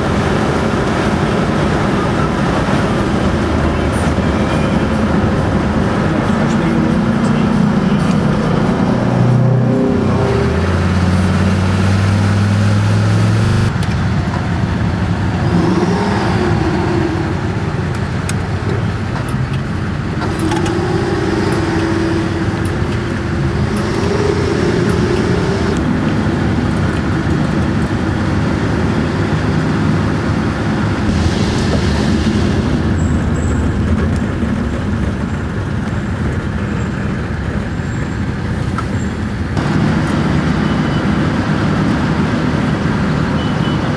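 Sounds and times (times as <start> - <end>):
diesel truck engine rumbling: 0.0 - 43.9.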